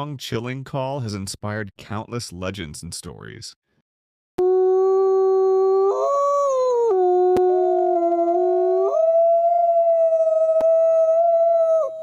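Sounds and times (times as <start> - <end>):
second wolf howl: 4.4 - 12.0
wolf howling: 4.6 - 12.0.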